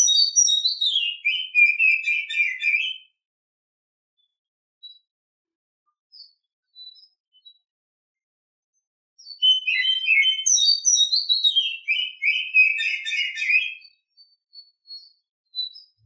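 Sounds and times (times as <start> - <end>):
bird whistled song: 0.0 - 3.2, 6.1 - 7.6, 9.2 - 16.0.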